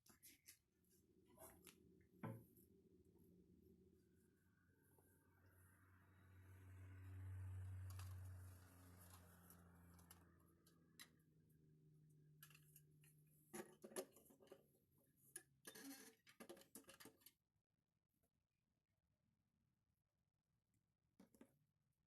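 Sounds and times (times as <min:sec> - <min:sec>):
low hum: 0:02.5 - 0:10.2.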